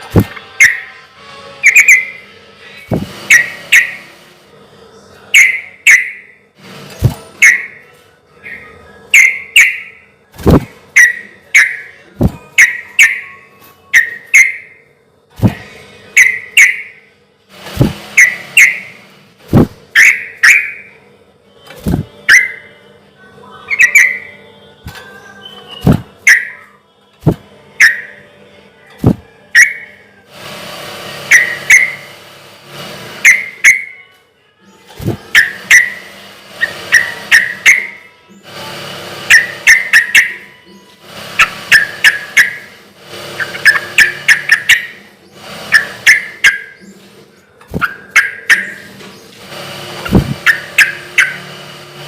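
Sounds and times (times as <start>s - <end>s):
bird chirping song: 1.6s - 4.1s, 4.9s - 6.4s, 7.0s - 10.1s, 11.0s - 17.1s, 17.8s - 19.0s, 20.0s - 22.8s, 23.4s - 27.0s.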